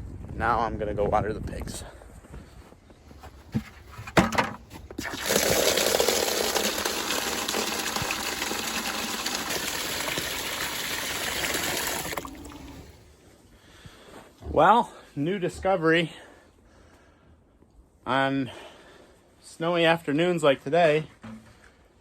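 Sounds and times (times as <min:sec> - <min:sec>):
water gushing in a steady stream: 0:04.9 - 0:13.0.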